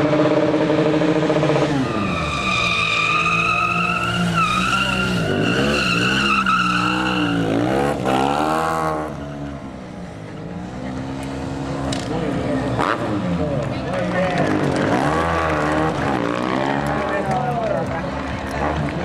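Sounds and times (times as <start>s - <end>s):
motorcycle engine revving: 0.0s - 19.0s
tyre squealing: 1.5s - 9.7s.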